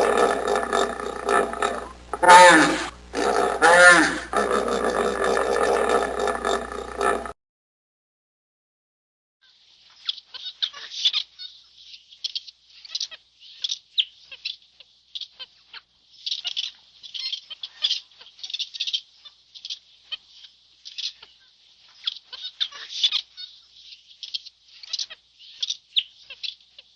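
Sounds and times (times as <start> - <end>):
birds chirping and chattering: 0.0 - 7.3.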